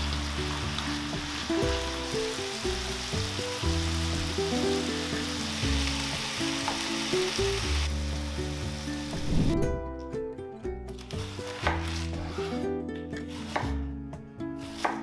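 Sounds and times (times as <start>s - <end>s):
food sizzling in hot oil: 0.0s - 9.6s
background music: 0.0s - 15.0s.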